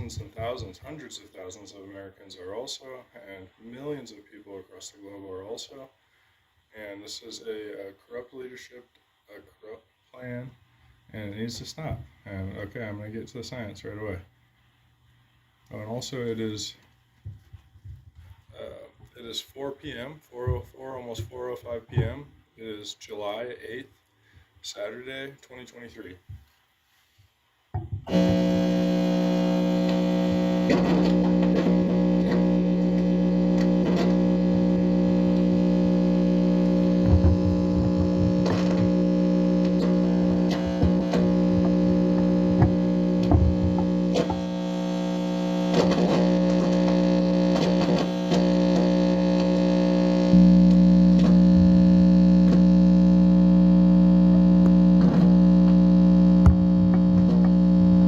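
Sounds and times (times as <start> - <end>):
distorted electronic buzz: 0.0 - 0.7, 28.0 - 58.0
clicks: 27.8 - 58.0.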